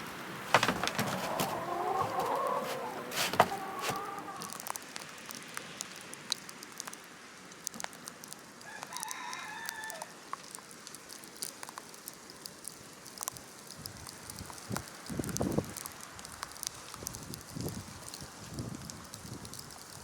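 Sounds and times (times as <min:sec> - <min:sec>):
rooster crowing: 0:00.6 - 0:04.6, 0:08.6 - 0:10.1
small ticks and taps: 0:07.6 - 0:18.2.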